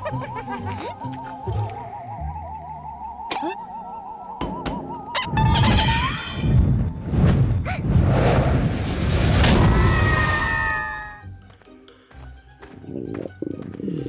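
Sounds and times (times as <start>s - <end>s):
music: 0.0s - 7.3s, 9.6s - 14.0s.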